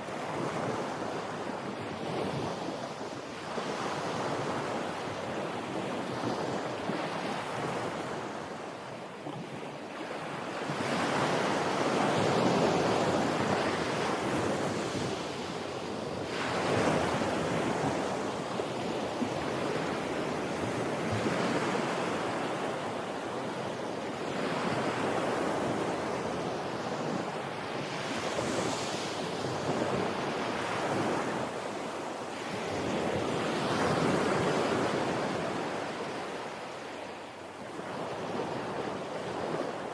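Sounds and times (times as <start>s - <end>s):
wind on microphone: 0.0s - 36.6s
waves breaking on shore: 0.0s - 39.9s.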